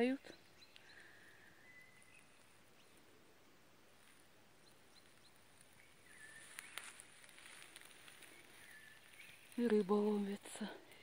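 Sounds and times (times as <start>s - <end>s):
distant bird calls: 0.0s - 11.0s
rustling: 3.8s - 11.0s.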